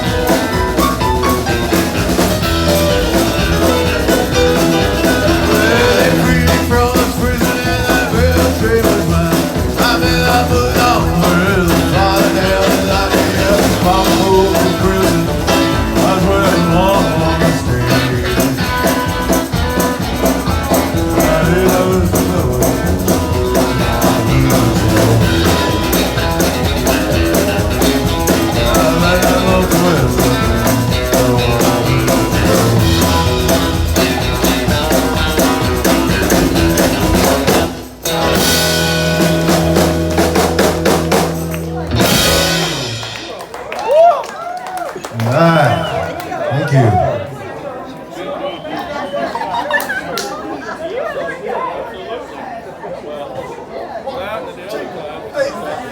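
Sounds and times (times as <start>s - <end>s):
guitar: 0.0s - 44.2s, 44.8s - 47.6s
rock and roll band music: 0.0s - 47.4s
drums: 0.0s - 47.6s
person singing: 2.1s - 19.8s, 20.6s - 37.7s.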